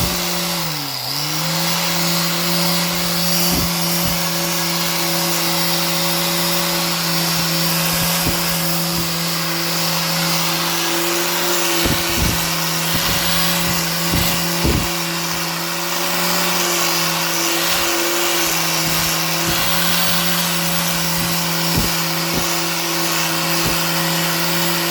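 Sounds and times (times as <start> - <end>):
hiss of cutting or sanding: 0.0 - 24.9
power tool motor hum: 0.0 - 24.9.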